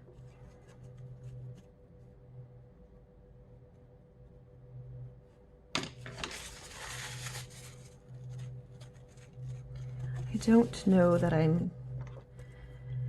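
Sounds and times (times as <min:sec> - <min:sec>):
steady low hum: 0:00.0 - 0:13.0
paper rustling: 0:06.0 - 0:11.3.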